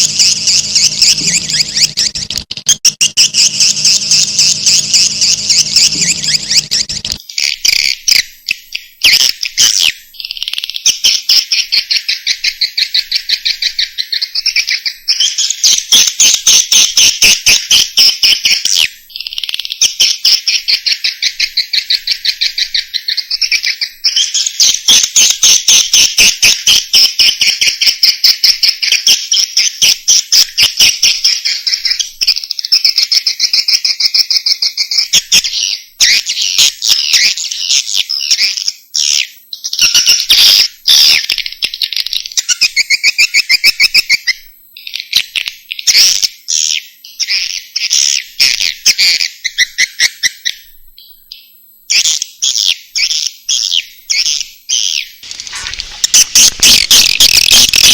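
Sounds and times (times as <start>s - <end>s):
swiftlet chirping trills: 0.0s - 7.2s.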